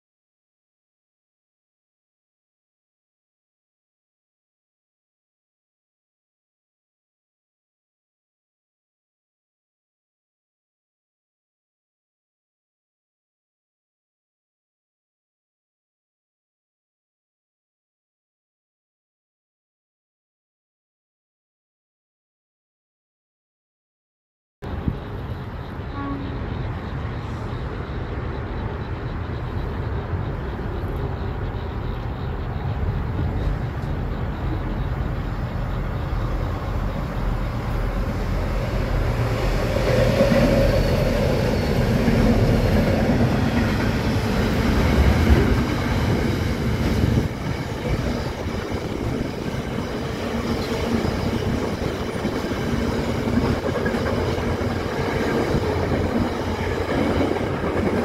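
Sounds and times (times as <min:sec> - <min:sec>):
diesel locomotive engines: 0:24.6 - 0:58.0
freight wagons rumbling: 0:24.7 - 0:58.0.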